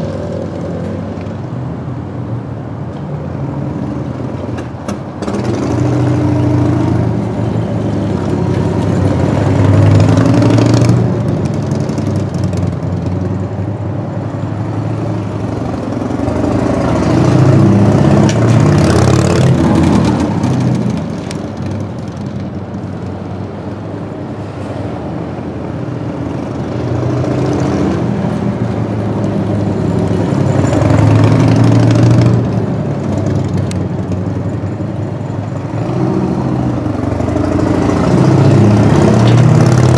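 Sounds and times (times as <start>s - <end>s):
motorcycle engine revving: 5.2s - 13.4s, 15.4s - 21.9s, 35.6s - 39.9s.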